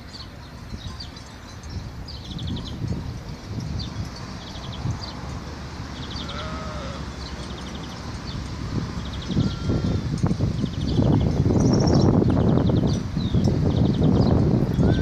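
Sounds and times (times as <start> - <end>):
bird call with trill: 6.0 - 15.0
sheep bleating: 6.2 - 7.1, 9.4 - 10.0.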